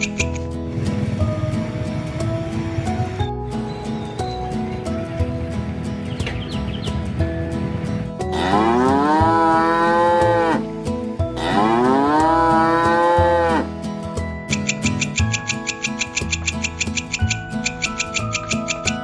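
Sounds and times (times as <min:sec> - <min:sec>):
background music: 0:00.0 - 0:19.0
cow mooing: 0:08.2 - 0:13.7.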